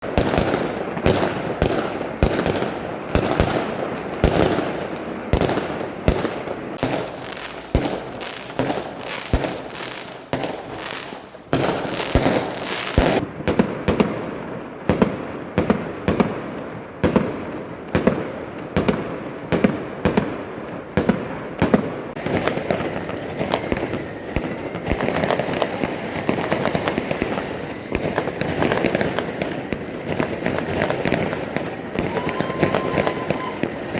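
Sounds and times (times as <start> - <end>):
fireworks banging: 0.0 - 33.9
fireworks crackling: 0.0 - 33.9.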